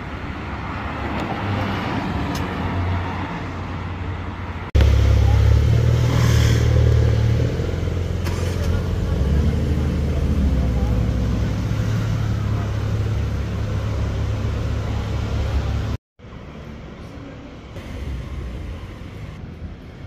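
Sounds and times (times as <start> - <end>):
street traffic noise: 0.0 - 20.0
car engine deep rumble: 4.7 - 16.0.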